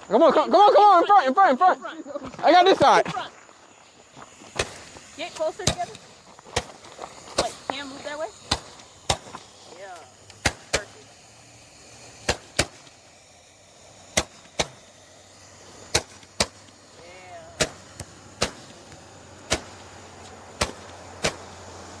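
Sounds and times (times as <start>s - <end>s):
faint steady hum: 0.0s - 22.0s
sharp firework pops: 4.1s - 11.1s, 11.9s - 13.2s, 13.9s - 15.0s, 15.7s - 16.9s, 17.6s - 21.7s.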